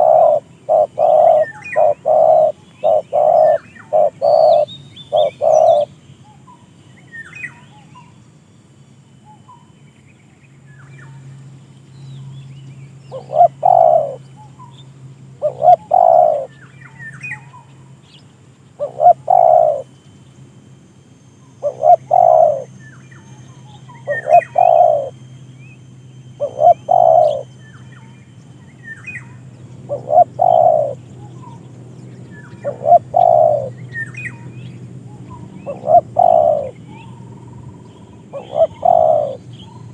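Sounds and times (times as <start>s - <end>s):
dove cooing: 0.0s - 5.9s, 13.1s - 14.2s, 15.4s - 16.5s, 18.8s - 19.9s, 21.6s - 22.7s, 23.9s - 25.2s, 26.3s - 27.5s, 29.8s - 31.6s, 32.4s - 34.5s, 35.1s - 39.9s
small birds chirping faintly: 0.0s - 39.9s.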